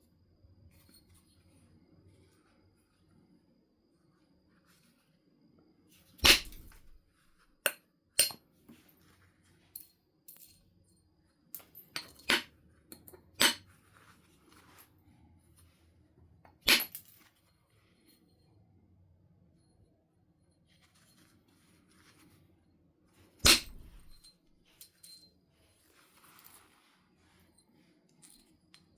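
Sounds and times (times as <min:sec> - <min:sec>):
tool striking stone clicks: 0:06.2 - 0:07.0, 0:07.6 - 0:08.4, 0:12.0 - 0:13.6, 0:23.4 - 0:24.3.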